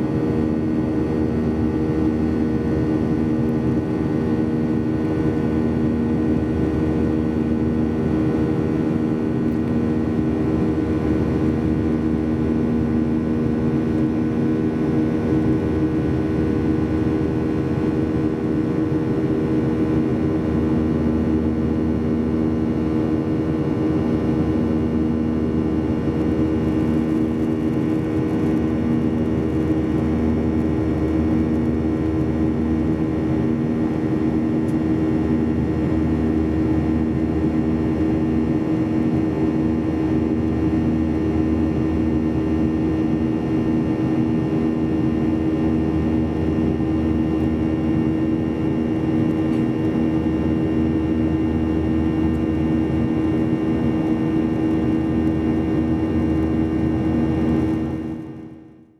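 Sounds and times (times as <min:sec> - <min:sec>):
airplane cabin engine drone: 0:00.0 - 0:58.9.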